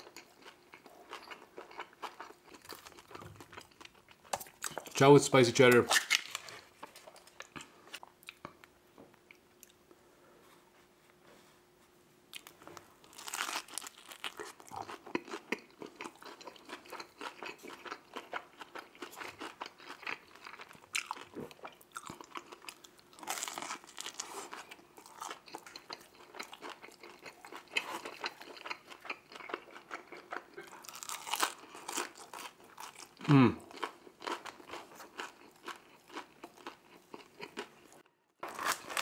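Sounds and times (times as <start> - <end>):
crackly chewing: 0.0 - 5.0, 12.3 - 39.0
pizza crust crunching: 12.4 - 21.3, 22.0 - 37.7, 38.4 - 39.0.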